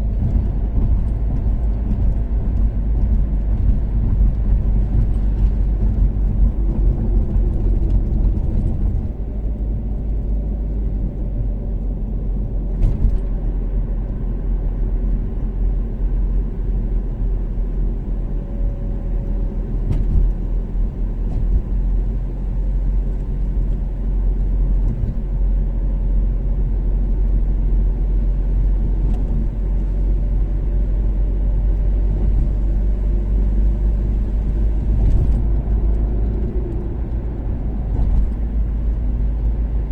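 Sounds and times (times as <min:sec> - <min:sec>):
tyre and road rumble: 0:00.0 - 0:17.0, 0:17.6 - 0:39.9
car engine drone: 0:00.0 - 0:39.9.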